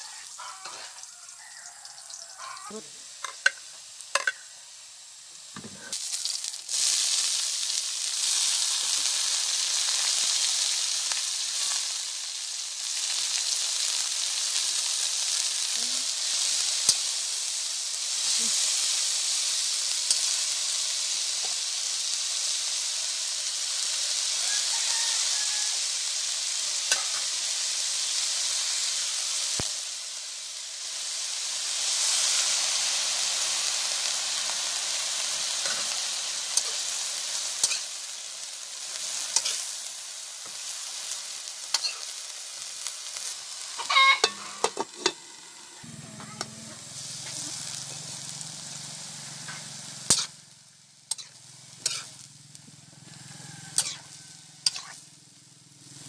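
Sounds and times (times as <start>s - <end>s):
food frying in a wok: 0.0s - 56.0s
loud steady sizzle: 0.0s - 56.0s
metal spoon clacking on wok: 3.2s - 4.5s, 43.8s - 45.2s, 49.5s - 50.4s.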